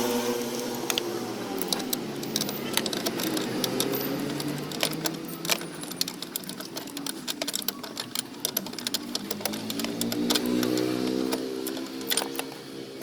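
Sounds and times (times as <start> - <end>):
mechanical clicking and ticking: 0.0 - 13.0.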